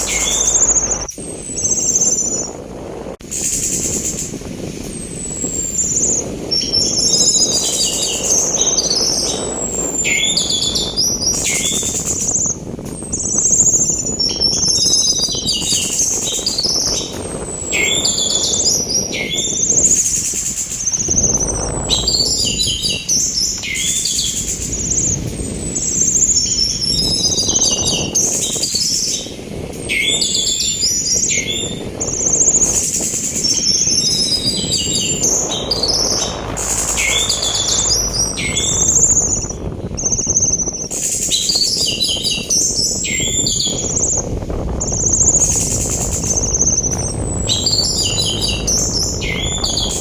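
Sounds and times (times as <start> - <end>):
rush of sea wind: 0.0 - 50.0
thrush singing: 13.2 - 29.4, 30.1 - 40.6, 43.2 - 50.0.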